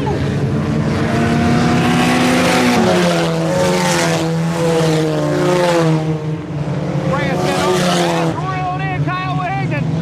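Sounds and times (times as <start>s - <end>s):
race car engines running hard: 0.0s - 10.0s.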